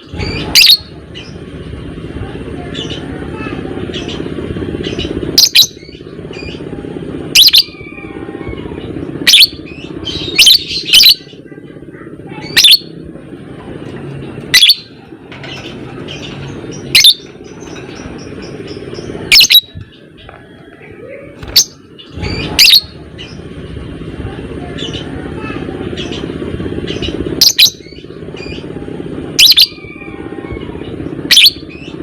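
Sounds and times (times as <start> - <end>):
lovebird shrieking: 29.4 - 31.7.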